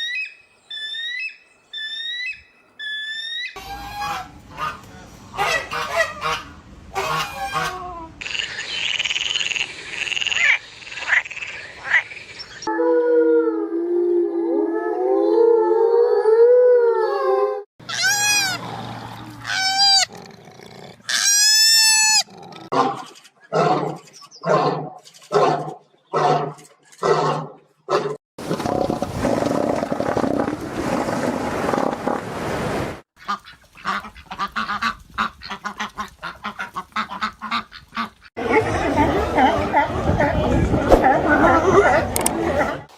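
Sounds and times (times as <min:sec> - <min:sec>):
evenly spaced animal calls: 0:00.0 - 0:04.8.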